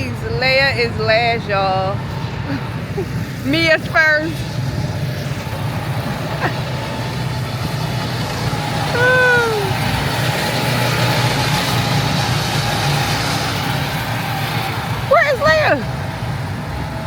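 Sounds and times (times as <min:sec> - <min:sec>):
go-kart engines droning: 0:00.0 - 0:17.0
rising and falling call: 0:08.8 - 0:10.3.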